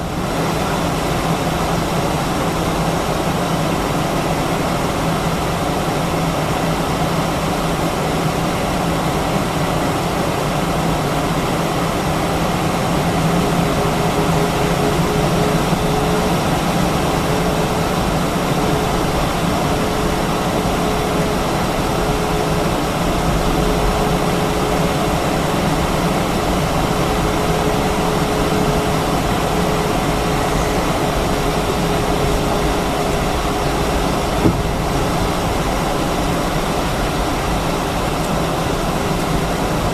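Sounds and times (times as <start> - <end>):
aircraft cabin hum: 0.0 - 39.9.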